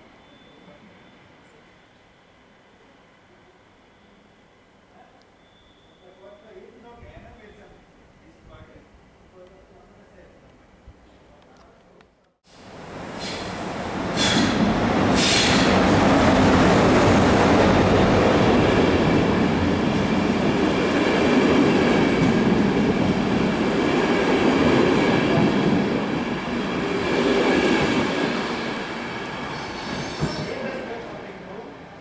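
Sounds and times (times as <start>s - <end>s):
train wheels rumbling on rail: 12.6s - 31.2s
high squealing tones: 29.2s - 30.6s.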